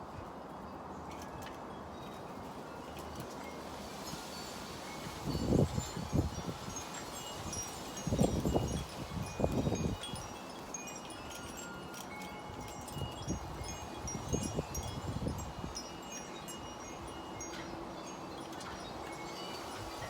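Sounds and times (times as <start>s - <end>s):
wind chimes ringing: 0.6s - 20.0s
wind rumbling on microphone: 4.1s - 10.4s, 12.6s - 17.2s.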